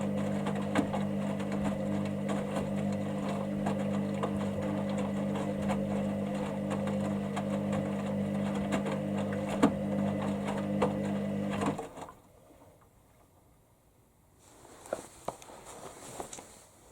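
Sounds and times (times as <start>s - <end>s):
washing machine motor humming: 0.0s - 12.2s.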